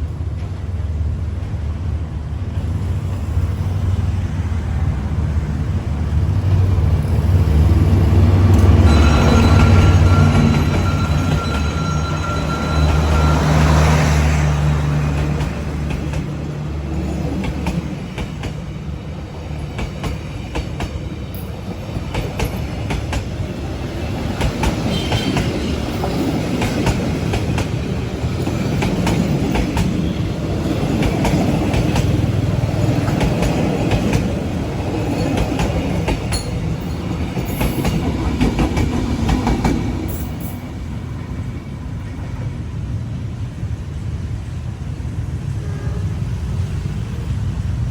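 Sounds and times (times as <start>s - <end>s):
diesel locomotive engine droning: 0.0s - 47.9s
train wheels clacking over rail joints: 19.6s - 40.8s.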